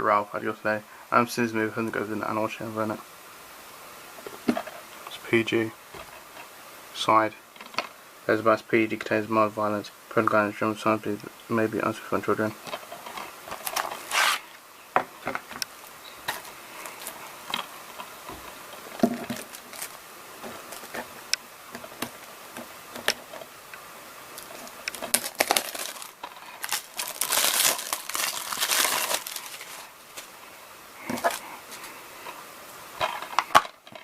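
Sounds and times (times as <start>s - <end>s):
crinkling rustle: 12.4s - 14.6s, 16.2s - 23.6s, 24.3s - 32.4s.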